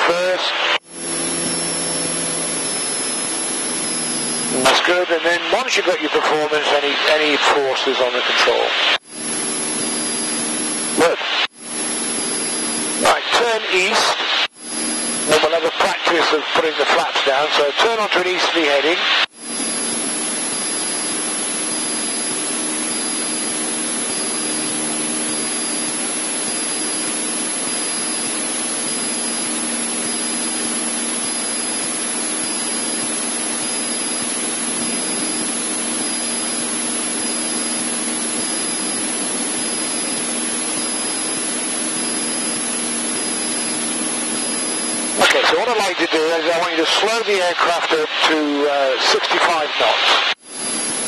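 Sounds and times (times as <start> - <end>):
airplane engine and propeller: 0.0 - 51.0.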